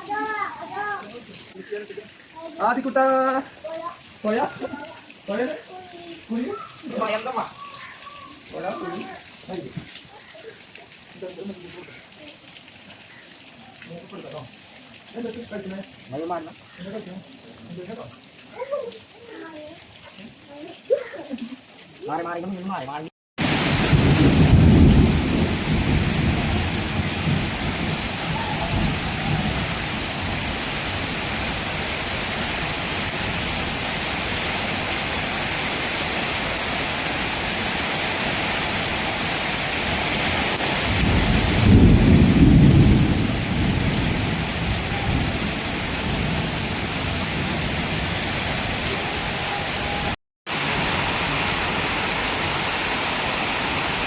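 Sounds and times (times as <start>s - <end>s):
heavy rain falling: 0.0s - 54.0s
low rumble of thunder: 23.5s - 30.5s, 40.8s - 48.4s.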